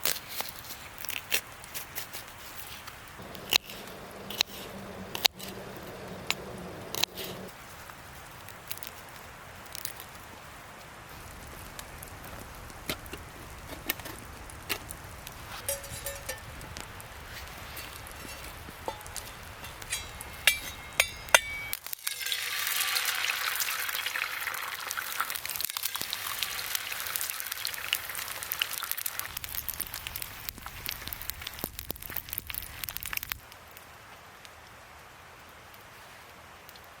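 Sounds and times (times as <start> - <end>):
food sizzling in frying pan: 11.1 - 33.3.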